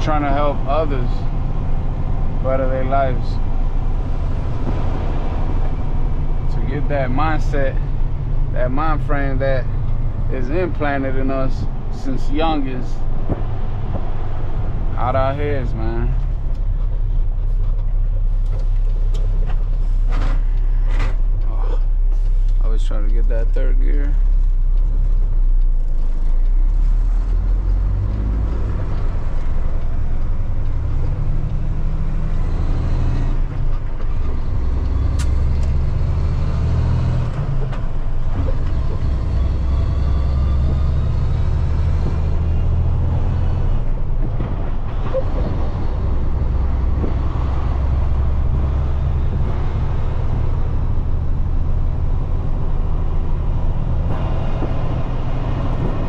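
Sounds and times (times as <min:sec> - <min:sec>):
truck diesel engine shifting gears: 0:00.0 - 0:56.0.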